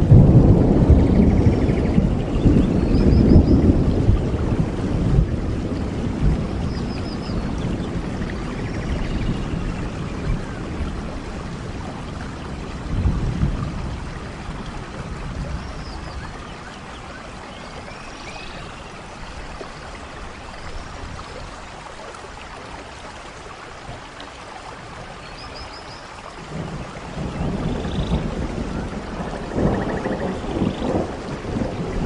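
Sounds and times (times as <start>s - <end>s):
thunder rumbling: 0.0s - 16.5s, 26.4s - 32.0s
steady rainfall: 0.0s - 32.0s.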